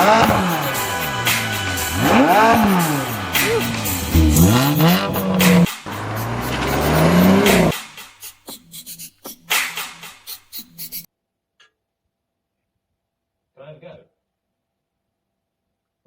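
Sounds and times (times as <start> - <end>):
car engine revving: 0.0 - 8.0
music: 0.0 - 11.1.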